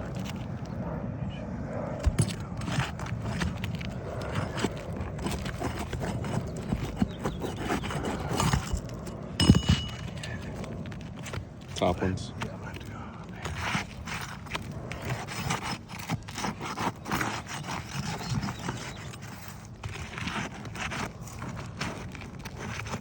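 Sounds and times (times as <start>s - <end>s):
metal tool scraping on roof shingles: 2.0s - 23.0s
metal clank: 9.4s - 10.2s.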